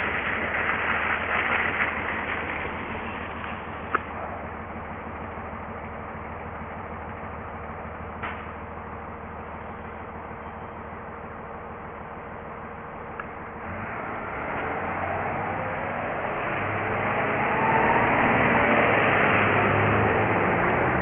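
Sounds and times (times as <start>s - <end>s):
rushing noise: 0.0s - 4.7s, 13.4s - 21.0s
low engine hum: 0.0s - 21.0s.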